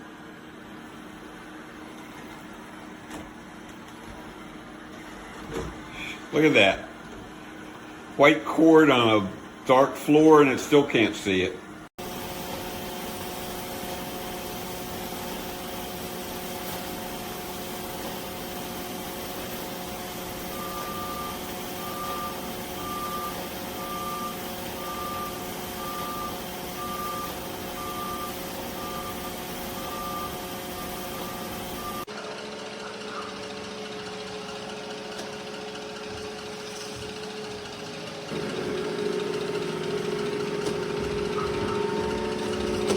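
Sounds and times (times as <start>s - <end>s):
robot vacuum motor hum: 12.0s - 32.1s, 36.1s - 42.9s.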